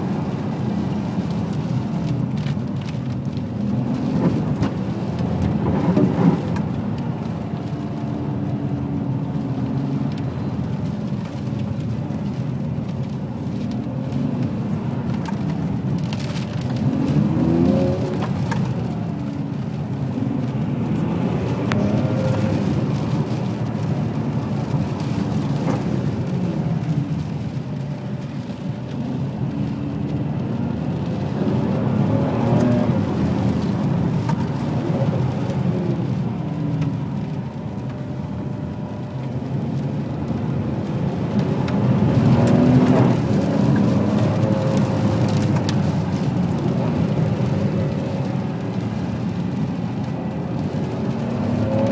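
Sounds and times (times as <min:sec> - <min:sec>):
tyres hissing on wet road: 0:00.0 - 0:51.9
car engine revving: 0:13.6 - 0:36.2.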